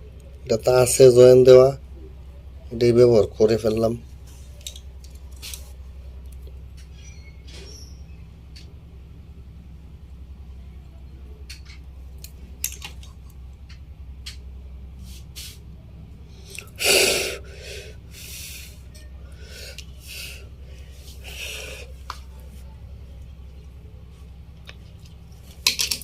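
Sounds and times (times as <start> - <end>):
low electrical hum: 0.0 - 26.0
sharp breath noises: 16.2 - 22.1.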